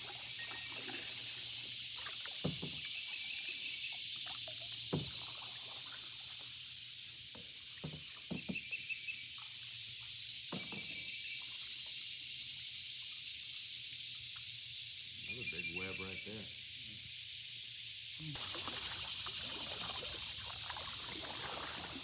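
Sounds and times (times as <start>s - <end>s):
canoe paddles knocking and dipping: 0.0s - 11.3s, 18.4s - 22.0s.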